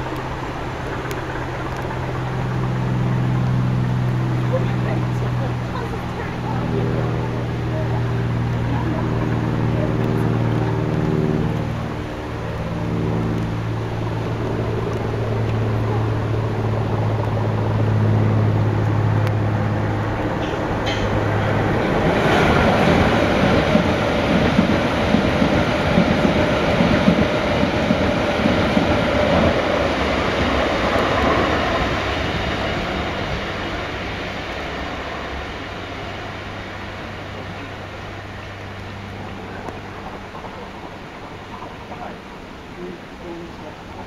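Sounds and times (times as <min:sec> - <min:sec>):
diesel engine drone: 0:00.0 - 0:44.0
electric train passing: 0:00.0 - 0:44.0
train wheels clattering: 0:20.1 - 0:31.8.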